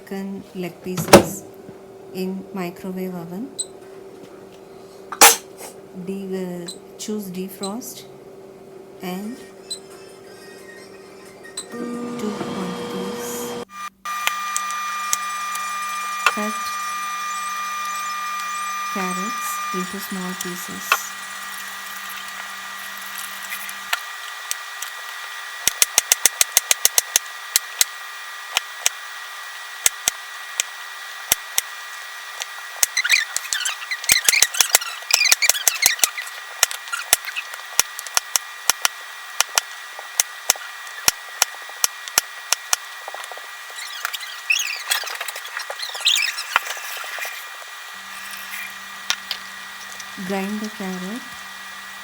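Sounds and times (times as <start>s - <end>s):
knife scraping cutting board: 43.9s - 48.8s.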